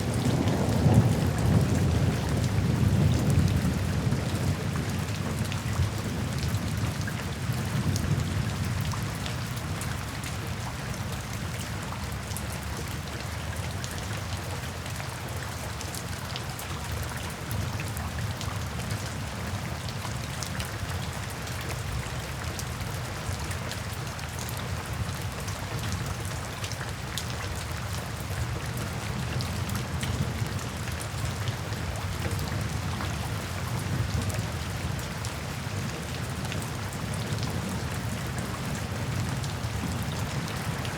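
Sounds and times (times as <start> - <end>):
low rumble of thunder: 0.0 - 9.2
rain splashing into puddles: 0.0 - 40.9.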